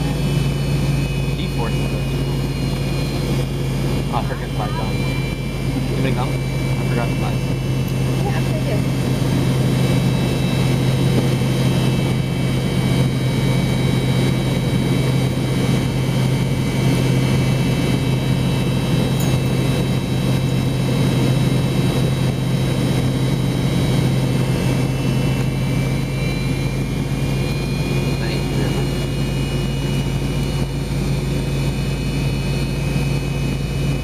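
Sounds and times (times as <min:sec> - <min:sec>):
high thin whines: 0:00.0 - 0:14.4
jet engines idling: 0:00.0 - 0:34.0.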